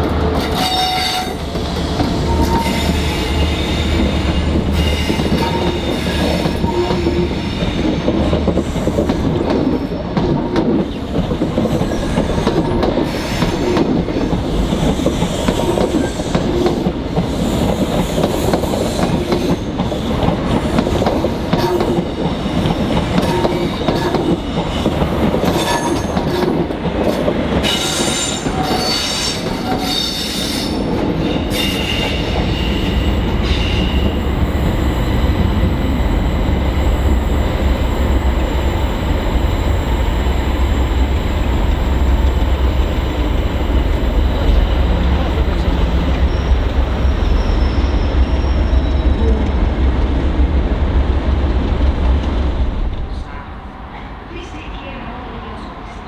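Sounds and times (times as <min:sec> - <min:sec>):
train wheels knocking on rail joints: 0:03.9 - 0:32.6.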